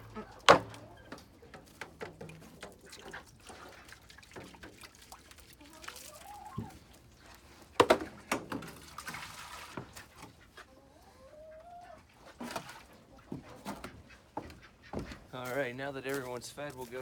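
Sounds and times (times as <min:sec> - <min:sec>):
hens clucking: 0:00.0 - 0:17.0.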